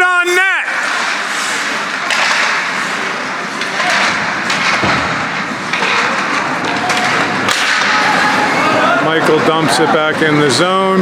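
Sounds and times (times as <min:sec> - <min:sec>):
crowd din in ice rink: 0:00.0 - 0:11.0
hockey sticks and puck knocking: 0:00.8 - 0:08.7
loud thud: 0:03.9 - 0:06.2.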